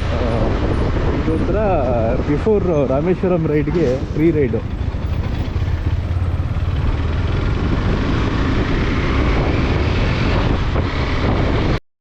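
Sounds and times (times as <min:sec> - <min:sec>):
wind rush on microphone: 0:00.0 - 0:11.8
motorcycle engine running: 0:03.4 - 0:11.6.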